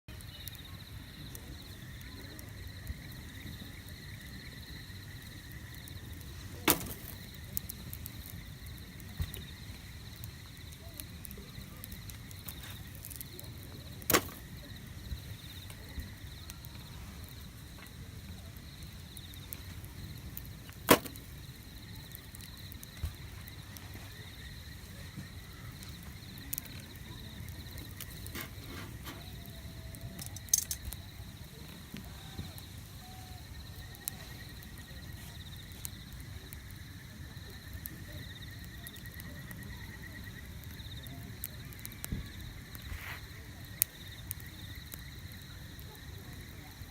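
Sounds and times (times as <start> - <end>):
wood fire crackling: 0.1 - 46.9
loud sharp fire pops: 6.2 - 16.8, 19.1 - 24.4.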